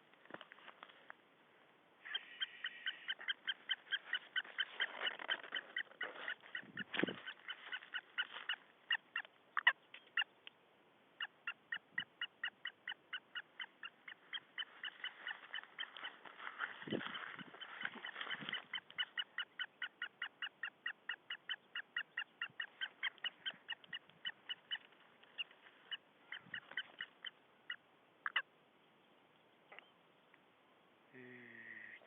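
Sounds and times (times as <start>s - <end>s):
bird calling in sharp notes: 2.0s - 10.4s.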